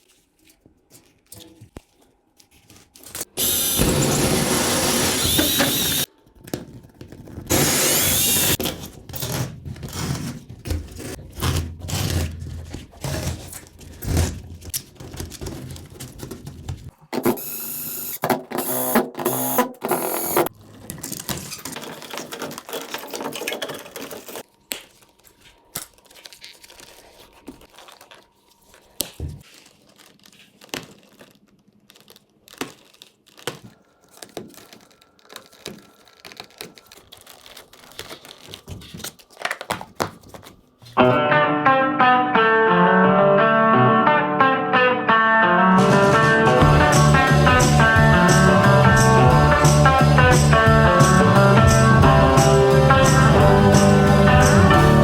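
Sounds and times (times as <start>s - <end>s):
power drill running: 3.4s - 6.1s, 7.5s - 8.6s, 17.3s - 20.5s.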